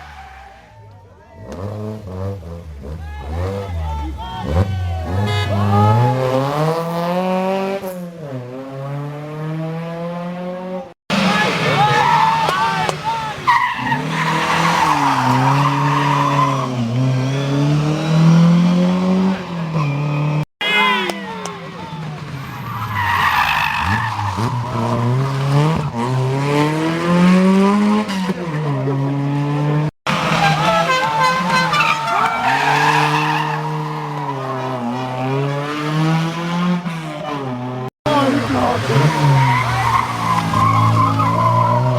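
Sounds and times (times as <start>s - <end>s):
rally car engine accelerating: 1.4s - 20.4s, 21.4s - 41.9s
tyre squeal: 19.7s - 21.0s, 30.3s - 35.2s, 39.2s - 41.9s.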